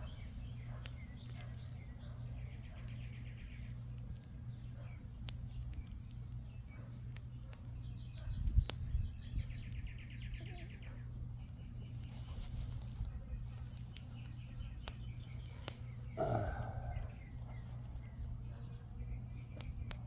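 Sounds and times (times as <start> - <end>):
campfire crackles: 0.0 - 20.0
songbird trilling: 13.8 - 18.3.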